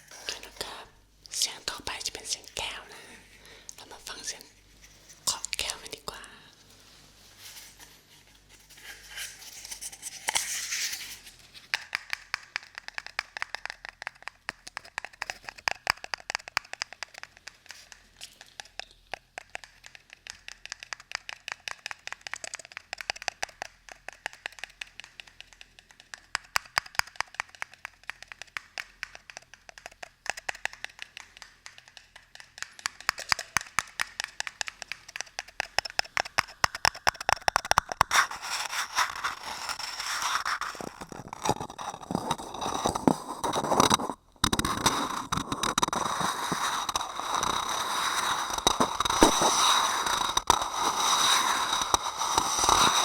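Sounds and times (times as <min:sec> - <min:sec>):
rustling scrape: 0:04.5 - 0:05.3, 0:06.6 - 0:11.7, 0:38.1 - 0:53.0
rapid light tapping: 0:11.7 - 0:39.8.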